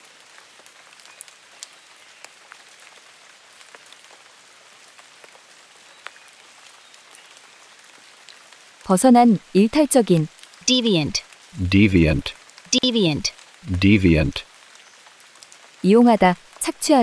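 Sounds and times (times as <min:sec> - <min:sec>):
rain hiss: 0:14.5 - 0:16.1.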